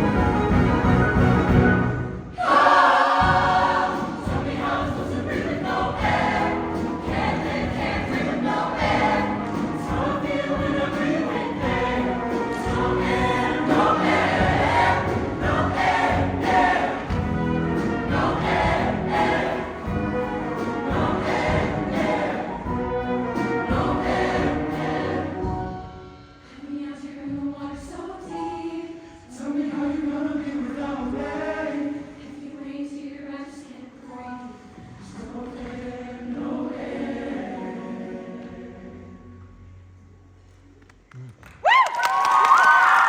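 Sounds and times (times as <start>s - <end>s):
live show band: 0.0s - 2.3s, 3.2s - 26.2s
choir singing in harmony: 0.0s - 40.1s.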